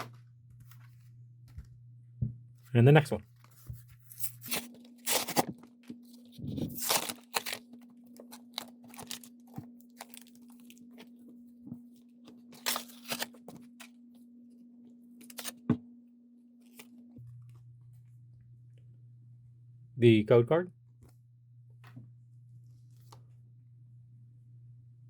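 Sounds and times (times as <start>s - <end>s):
packaging being torn open: 4.1s - 5.5s, 6.6s - 10.8s, 12.6s - 13.4s, 15.2s - 15.6s.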